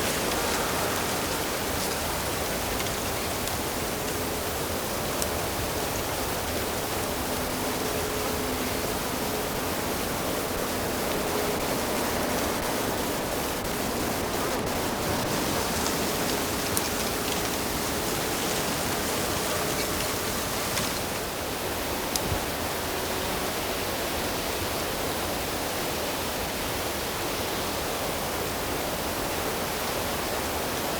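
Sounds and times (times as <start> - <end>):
running water rushing: 0.0 - 22.0.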